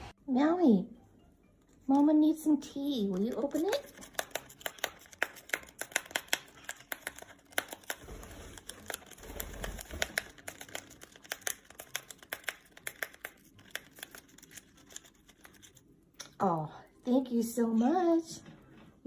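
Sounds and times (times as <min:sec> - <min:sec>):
paper packaging crinkling and tearing: 0:03.1 - 0:15.9.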